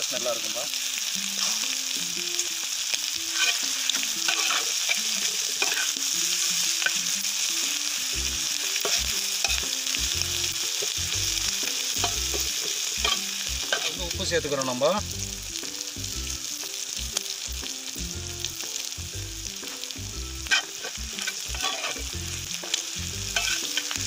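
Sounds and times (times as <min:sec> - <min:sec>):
liver sizzling in hot oil: 0:00.0 - 0:24.0
steel spatula scraping pan: 0:03.3 - 0:03.6, 0:04.2 - 0:06.0, 0:13.0 - 0:14.0, 0:20.4 - 0:22.1, 0:23.4 - 0:24.0.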